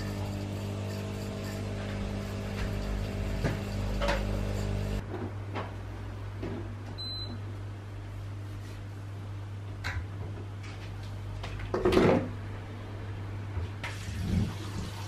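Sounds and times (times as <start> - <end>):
kitchen appliance humming: 0.0 - 5.0.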